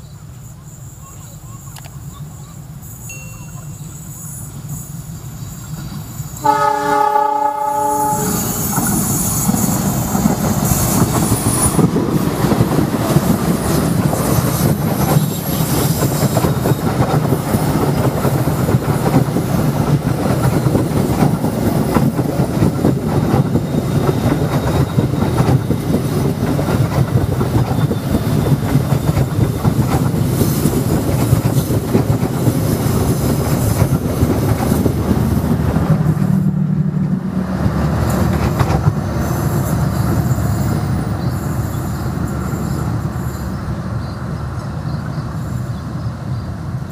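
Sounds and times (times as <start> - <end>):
train wheels rumbling on rails: 0.0 - 46.9
high-pitched wheel squeal: 2.9 - 10.0, 39.2 - 44.2.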